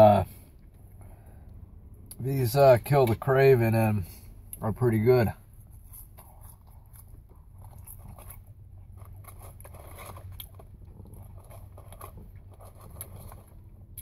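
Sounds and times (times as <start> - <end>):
low steady hum: 0.0 - 14.0
person chewing crunchy food: 5.4 - 14.0.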